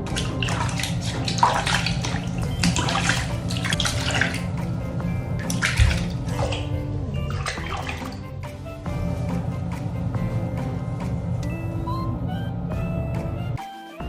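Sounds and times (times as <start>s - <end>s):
water splashing and running: 0.0s - 8.7s
background music: 0.0s - 14.0s.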